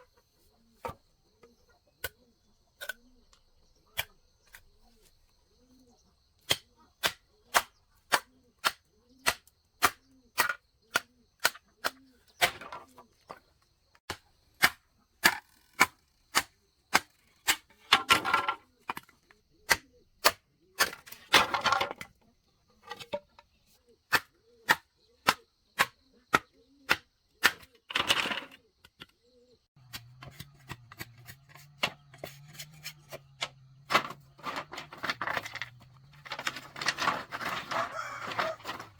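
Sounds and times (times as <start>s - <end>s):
scraping or rustling: 30.2s - 38.9s.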